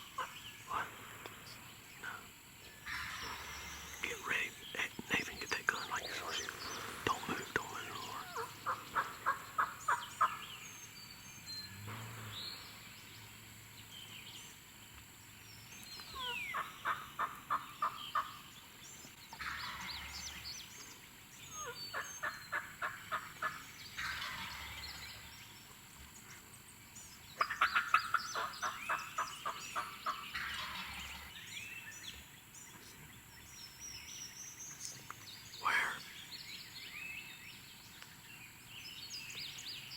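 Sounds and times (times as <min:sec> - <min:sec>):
soft turkey calls: 0:00.0 - 0:10.6, 0:16.0 - 0:18.5, 0:19.3 - 0:25.3, 0:27.4 - 0:31.4, 0:34.9 - 0:36.2
turkey yelping: 0:08.0 - 0:10.4, 0:27.4 - 0:31.0.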